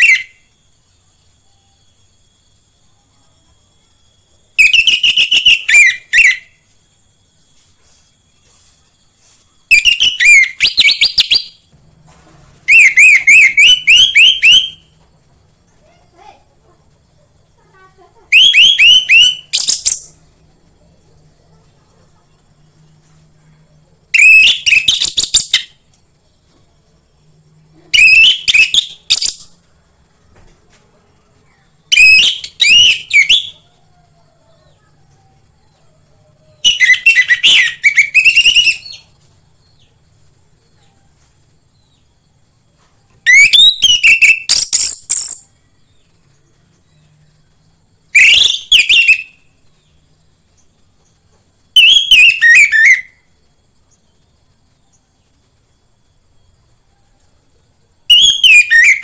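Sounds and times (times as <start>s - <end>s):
thrush singing whistles: 0.0s - 3.1s, 3.7s - 8.4s, 9.0s - 11.7s, 12.6s - 15.0s, 18.3s - 20.3s, 24.1s - 25.8s, 27.6s - 29.6s, 31.9s - 34.2s, 36.5s - 39.8s, 43.2s - 46.1s, 47.9s - 50.0s, 51.7s - 53.4s, 58.0s - 59.0s.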